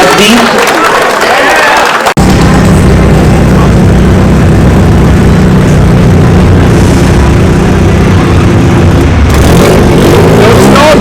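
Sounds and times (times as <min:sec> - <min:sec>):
car engine droning: 0:02.2 - 0:11.0.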